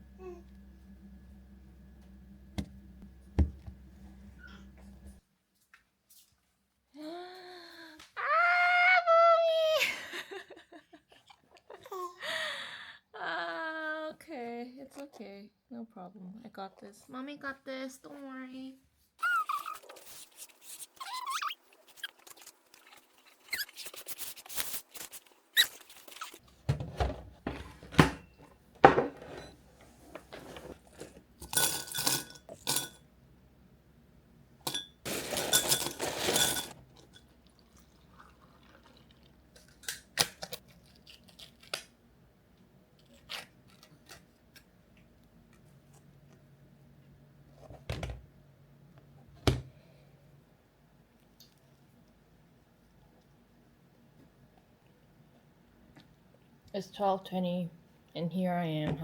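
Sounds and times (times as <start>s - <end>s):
household objects clinking and knocking: 26.7s - 29.6s, 30.2s - 33.0s, 34.7s - 37.3s.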